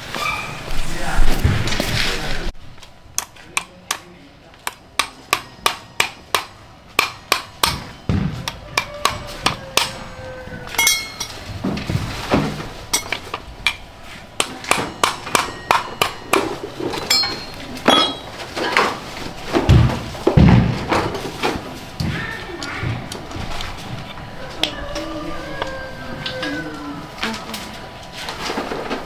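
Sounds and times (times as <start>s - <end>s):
hammer striking metal: 3.1s - 18.5s.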